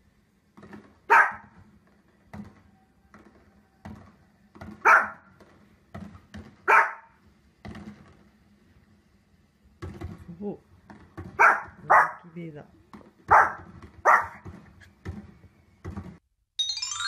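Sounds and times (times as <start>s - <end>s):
small dog barking: 1.1s - 1.5s, 4.8s - 5.3s, 6.6s - 7.2s, 11.4s - 12.3s, 13.3s - 14.4s.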